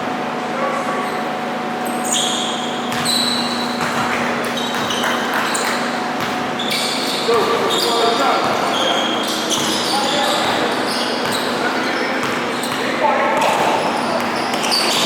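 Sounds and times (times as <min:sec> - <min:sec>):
faint constant hum: 0:00.0 - 0:15.0
gym hall noise: 0:00.0 - 0:15.0
sneaker squeaks on court: 0:01.8 - 0:15.0
basketball bouncing: 0:02.9 - 0:11.6, 0:12.2 - 0:15.0.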